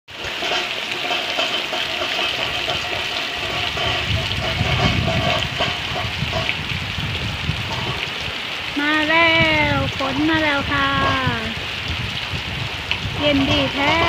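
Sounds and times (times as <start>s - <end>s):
heavy rain pouring: 0.1s - 14.0s
water gushing off roof: 0.1s - 14.0s
low rumble: 2.4s - 8.2s.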